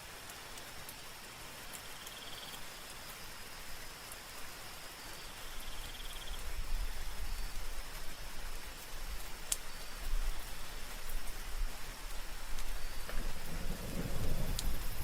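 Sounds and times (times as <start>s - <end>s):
faint high insect tone: 0.0s - 15.0s
soft rain: 0.0s - 15.0s
low rumble: 13.1s - 15.0s.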